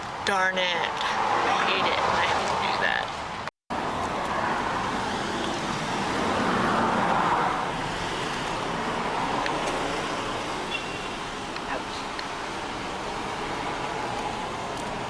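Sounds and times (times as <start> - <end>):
road traffic noise: 0.0 - 15.0
vehicle passing by: 0.9 - 15.0.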